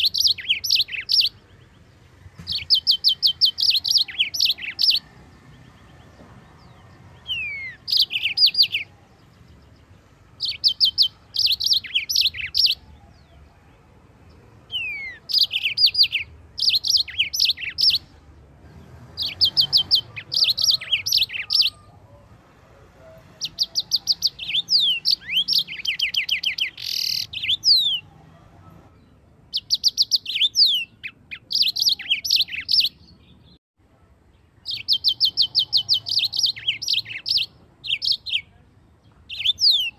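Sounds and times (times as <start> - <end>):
finch singing high trills: 0.0 - 1.8, 2.4 - 6.0, 6.6 - 9.8, 10.4 - 13.4, 14.7 - 18.1, 19.1 - 22.3, 23.4 - 28.1, 29.5 - 33.5, 34.6 - 38.6.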